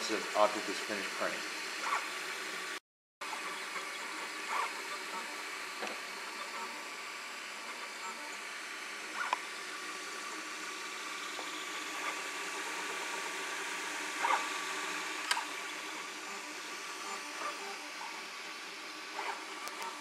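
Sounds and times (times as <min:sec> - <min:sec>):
printer mechanical noise: 0:03.2 - 0:20.0.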